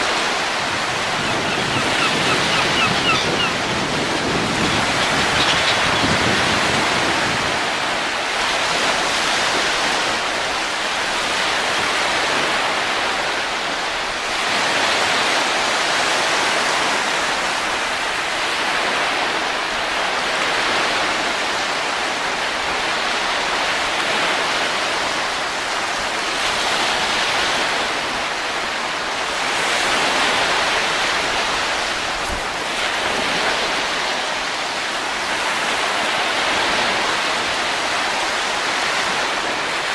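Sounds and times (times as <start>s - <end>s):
rushing wind gusts: 0.0s - 39.9s.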